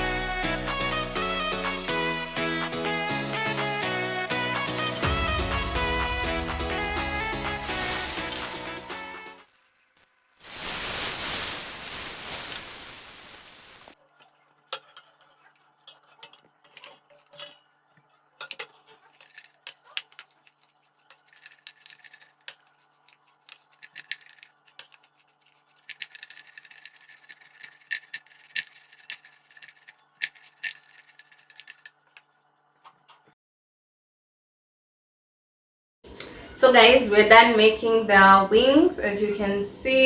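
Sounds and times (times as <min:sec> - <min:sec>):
utensils clinking against dishes: 0:14.7 - 0:17.7.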